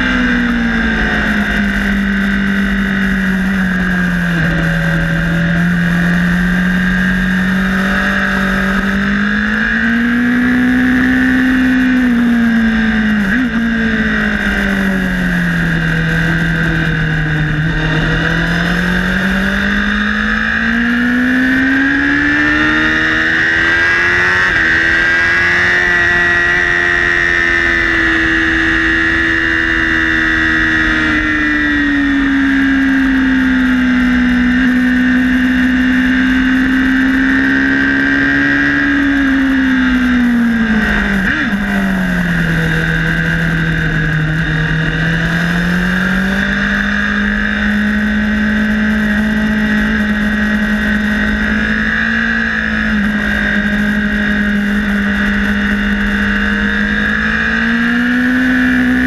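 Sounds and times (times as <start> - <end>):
motorcycle engine at speed: 0.0 - 59.0.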